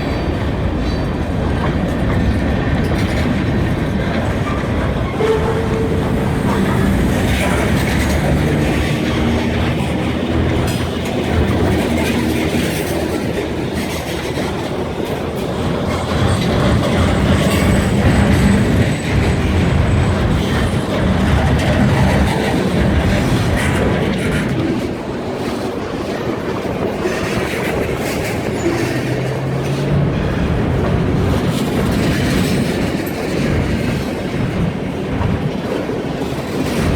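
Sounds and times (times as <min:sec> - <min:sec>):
freight train rumbling past: 0:00.0 - 0:36.9
wheels clattering over rail joints: 0:00.0 - 0:36.9
high wheel squeal: 0:04.3 - 0:10.9.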